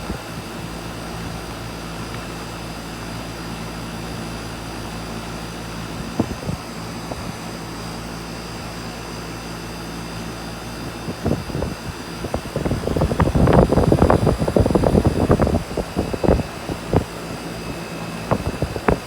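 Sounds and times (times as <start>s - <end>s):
wind buffeting microphone: 0.0s - 1.3s, 5.8s - 7.6s, 10.8s - 19.0s
air conditioner humming: 0.0s - 19.0s.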